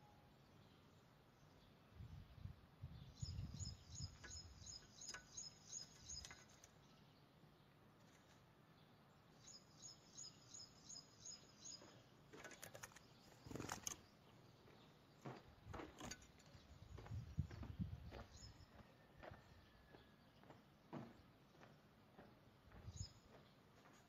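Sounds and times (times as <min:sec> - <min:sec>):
small bird chirping: 0:00.0 - 0:07.4, 0:08.0 - 0:19.1
soft low thumps: 0:16.8 - 0:18.5.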